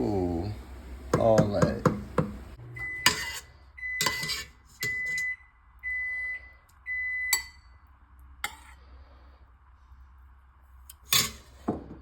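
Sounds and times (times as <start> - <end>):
electronic kitchen timer beeps: 2.6 - 7.8.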